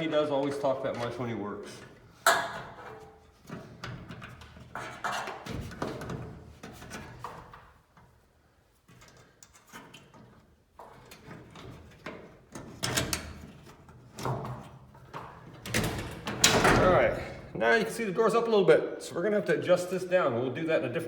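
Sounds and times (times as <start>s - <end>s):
garage door panels rattling: 11.2s - 17.5s
garage door rollers rumbling: 15.6s - 17.4s.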